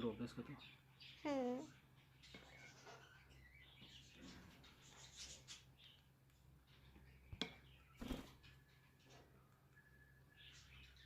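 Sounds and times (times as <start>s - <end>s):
parrot scratching and rustling: 4.1s - 5.9s.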